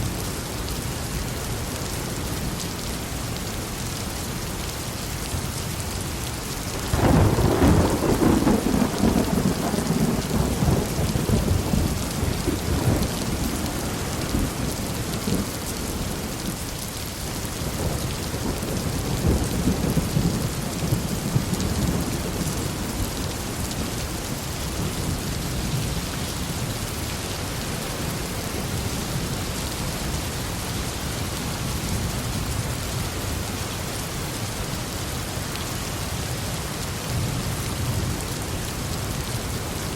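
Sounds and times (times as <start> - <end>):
heavy rain: 0.0 - 39.9
thunderclap rolling into rumble: 6.9 - 14.7.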